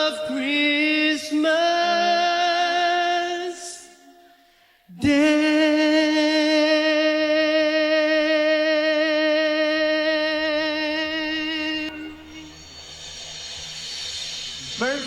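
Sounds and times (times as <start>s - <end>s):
man singing long note: 4.9s - 12.6s.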